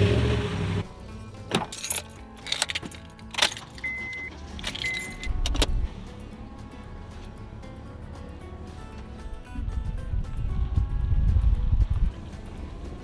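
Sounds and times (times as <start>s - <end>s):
faint music: 0.8s - 13.0s
keys jangling: 1.6s - 5.7s
short high beeps: 3.8s - 5.2s.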